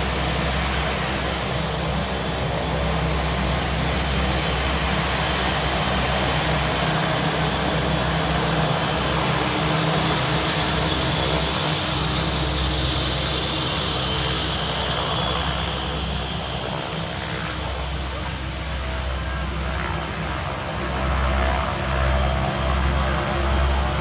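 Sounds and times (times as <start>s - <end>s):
turboprop engines running: 0.0s - 24.0s.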